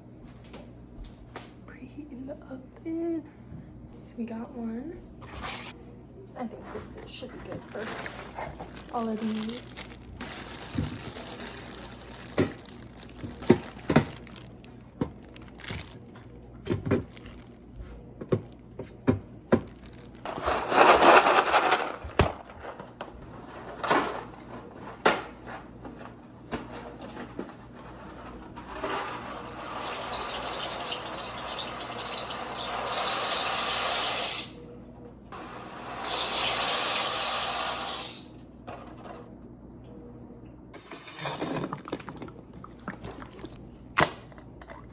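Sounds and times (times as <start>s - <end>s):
tap water running: 28.6s - 34.5s, 35.4s - 38.3s.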